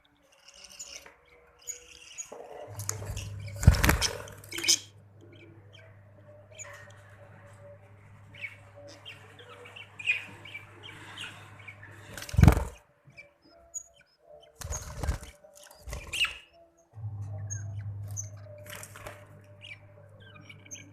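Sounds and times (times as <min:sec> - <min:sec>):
budgerigars chirping: 0:00.4 - 0:07.6, 0:08.2 - 0:16.6, 0:17.2 - 0:20.9
steady low hum: 0:02.6 - 0:12.8, 0:17.0 - 0:20.9
wing flapping: 0:02.7 - 0:04.7, 0:12.1 - 0:12.8.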